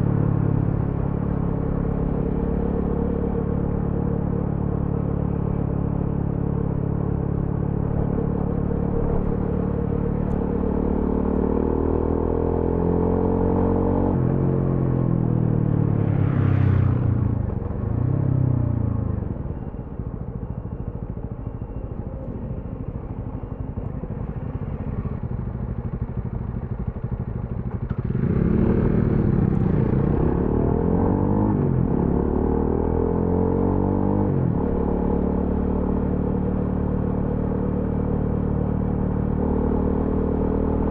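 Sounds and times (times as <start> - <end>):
motorcycle engine revving: 26.9 - 40.9.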